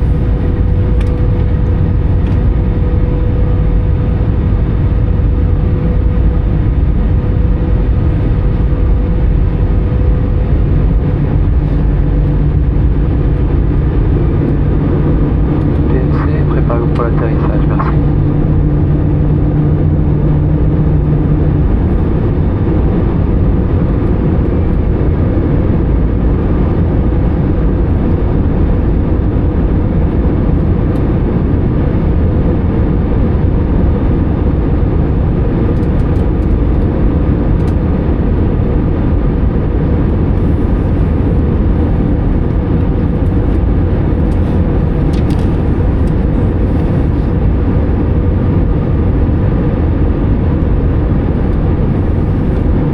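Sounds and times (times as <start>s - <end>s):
jet engines running: 0.0s - 52.9s
rushing airflow in aircraft cabin: 0.0s - 52.9s
steady low tone: 0.0s - 52.9s.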